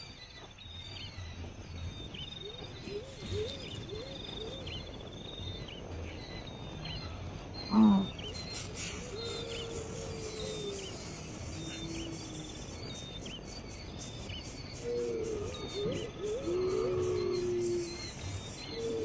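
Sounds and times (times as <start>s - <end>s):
lower arched bird calls: 2.4s - 19.0s
loud low animal cry: 7.7s - 8.2s.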